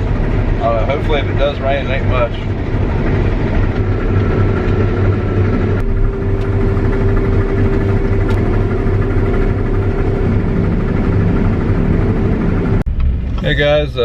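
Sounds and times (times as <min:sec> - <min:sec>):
farm vehicle engine running: 0:00.0 - 0:14.0.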